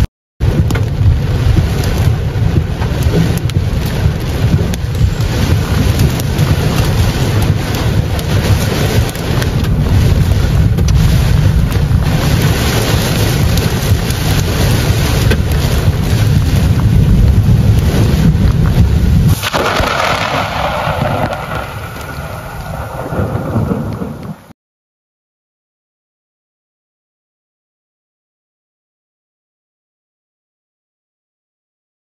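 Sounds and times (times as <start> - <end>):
deep thunder rumble: 0.4 - 24.5
heavy rain pouring: 0.4 - 24.5.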